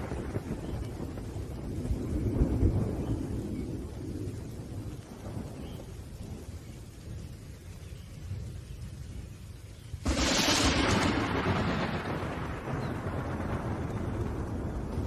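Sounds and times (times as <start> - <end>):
rolling thunder: 0.0 - 7.3, 10.0 - 15.0
steady rain: 0.0 - 15.0.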